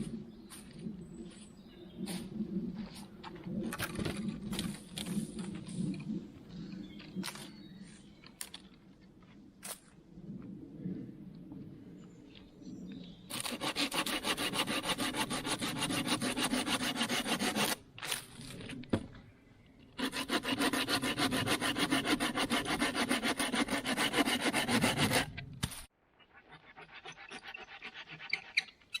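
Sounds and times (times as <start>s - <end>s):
hand saw cutting wood: 13.3s - 18.2s, 20.0s - 25.9s, 26.5s - 29.0s.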